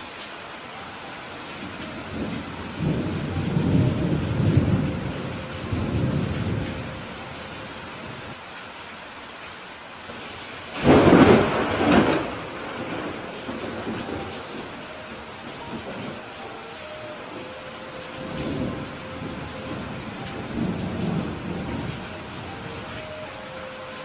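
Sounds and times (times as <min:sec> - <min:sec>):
rain hiss: 0:00.0 - 0:24.0
thunder rumbling: 0:01.6 - 0:08.3, 0:10.1 - 0:24.0
sharp thunderclap: 0:10.7 - 0:14.2.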